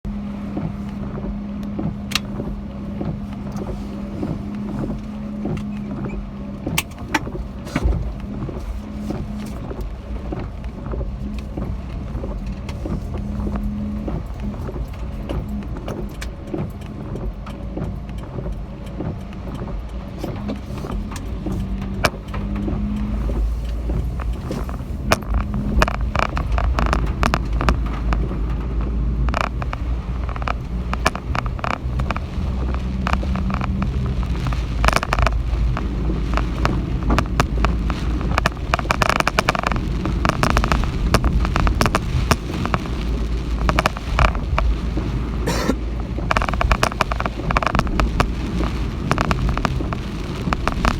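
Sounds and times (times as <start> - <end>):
wind rumbling on microphone: 0.0 - 50.9
rain taps and rattles: 0.1 - 50.9.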